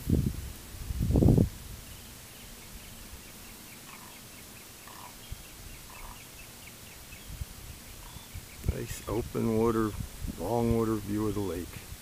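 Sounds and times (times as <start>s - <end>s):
lower bird calls: 1.8s - 10.0s
birds chirping high: 1.8s - 11.6s.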